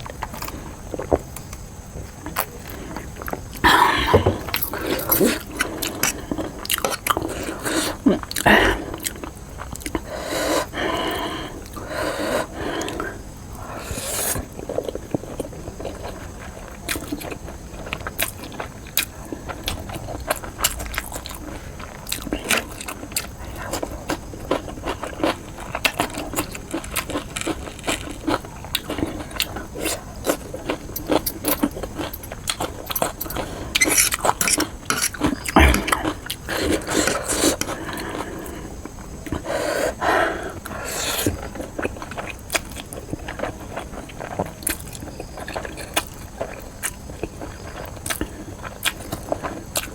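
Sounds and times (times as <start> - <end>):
wet chewing clicks: 0.0 - 49.9.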